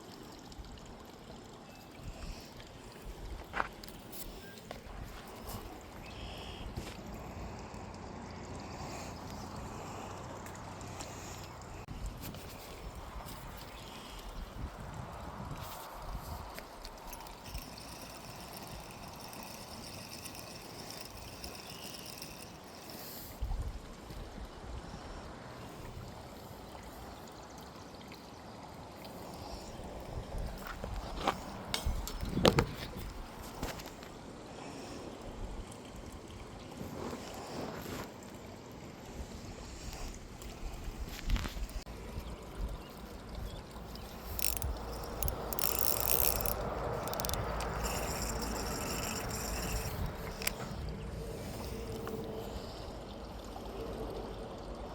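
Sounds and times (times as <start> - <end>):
creek water running: 0.0 - 54.9
fishing reel whirring and clicking: 15.6 - 23.4, 42.8 - 52.6.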